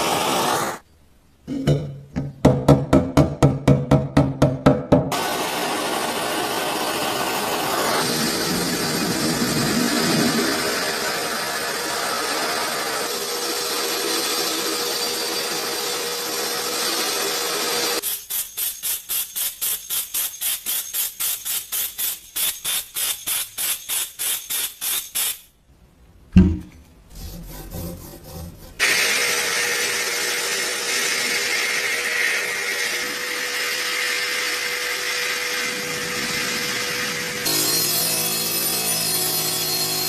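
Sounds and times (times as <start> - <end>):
power tool humming: 0.0 - 0.8, 5.1 - 18.0, 28.8 - 40.0
thump: 26.4 - 26.8
hand tool scraping metal: 27.1 - 29.1.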